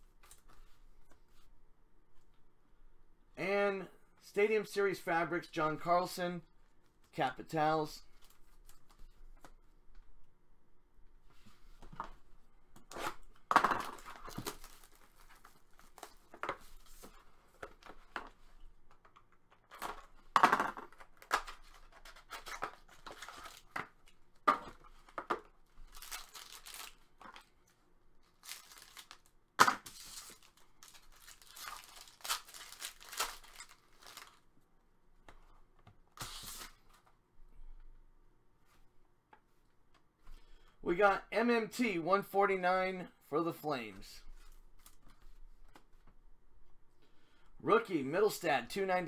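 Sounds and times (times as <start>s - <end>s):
card packs tearing: 21.2s - 23.8s, 25.9s - 27.1s, 28.3s - 34.4s, 36.2s - 36.8s
wrappers crinkling: 25.8s - 27.5s, 28.2s - 34.5s.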